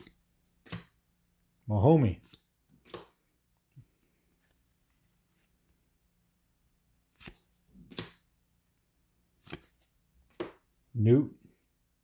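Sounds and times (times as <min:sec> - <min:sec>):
trading cards snapping: 0:00.0 - 0:01.0, 0:02.2 - 0:03.2, 0:07.1 - 0:08.3, 0:09.4 - 0:10.7.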